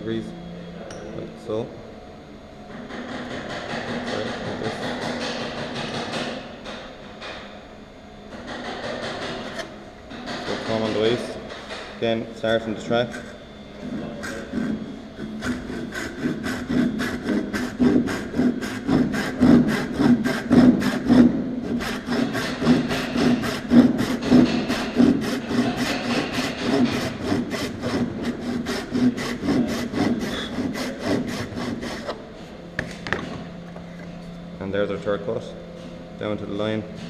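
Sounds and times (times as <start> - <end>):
hand saw cutting wood: 14.0 - 32.2.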